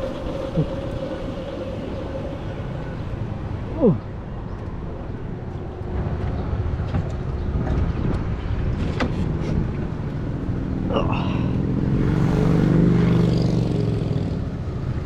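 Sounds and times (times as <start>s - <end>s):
motorcycle engine revving: 11.6s - 14.8s.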